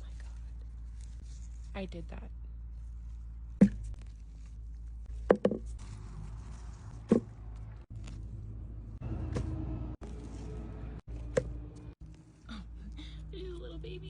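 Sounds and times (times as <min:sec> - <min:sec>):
soft rustling: 0:00.0 - 0:08.5.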